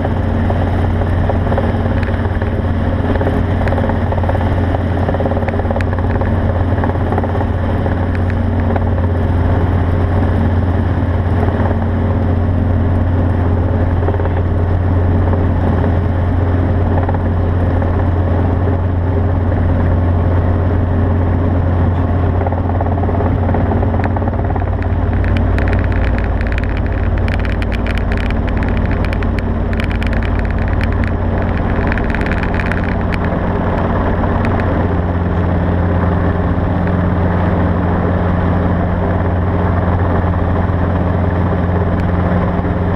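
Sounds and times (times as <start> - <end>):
engine droning: 0.0 - 42.9
light ticking: 23.9 - 34.7.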